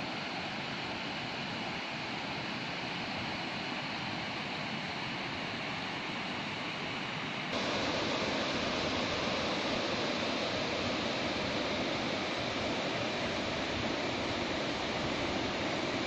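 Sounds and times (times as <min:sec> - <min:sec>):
wind: 0:00.0 - 0:16.0
river running over stones: 0:07.6 - 0:16.0.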